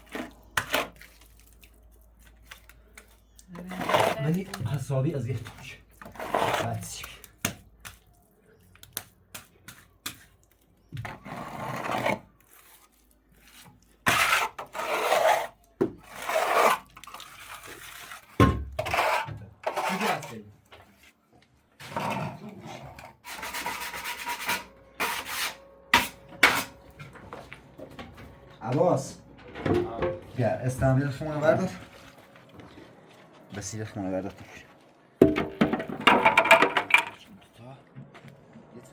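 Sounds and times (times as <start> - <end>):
hand tool scraping rough surface: 3.6 - 7.0, 11.0 - 20.4, 21.8 - 26.9.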